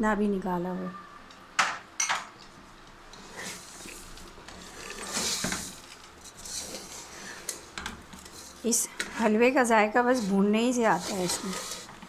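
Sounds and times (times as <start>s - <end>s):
frying hiss: 2.5s - 12.0s
scraping in cooking pot: 3.1s - 12.0s.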